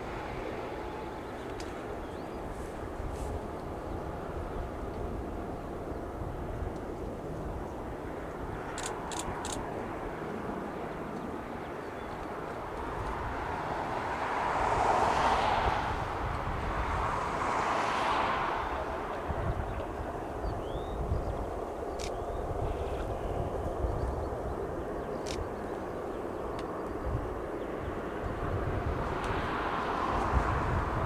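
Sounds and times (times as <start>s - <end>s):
light aircraft engine and propeller: 0.0s - 31.0s
wind rumble on microphone: 0.0s - 31.0s.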